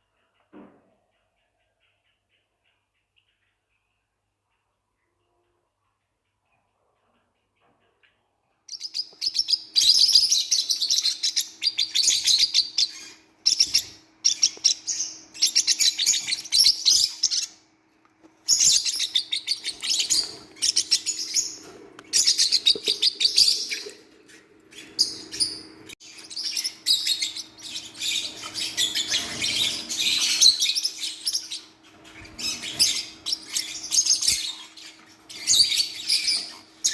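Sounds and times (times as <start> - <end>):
parrot chicks chirping: 8.3 - 36.9.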